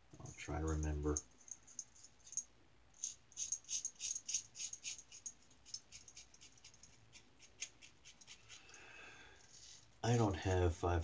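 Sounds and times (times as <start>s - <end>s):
razor scratching through stubble: 3.0s - 8.7s.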